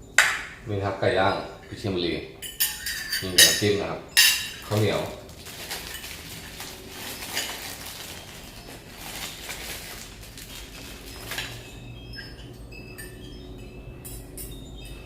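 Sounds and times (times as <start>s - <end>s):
spoons clinking on plates: 2.4s - 5.1s, 5.7s - 8.8s, 10.8s - 15.0s.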